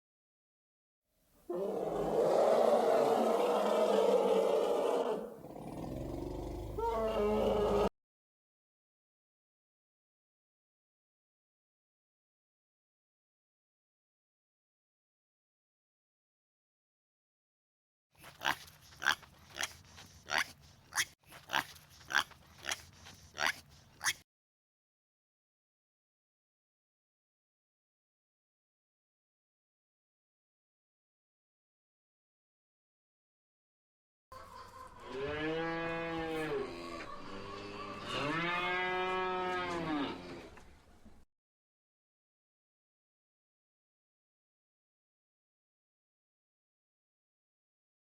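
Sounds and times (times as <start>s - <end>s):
animal making harsh calls: 1.5s - 7.9s, 18.2s - 24.2s
cow mooing: 2.8s - 7.9s, 35.0s - 40.6s.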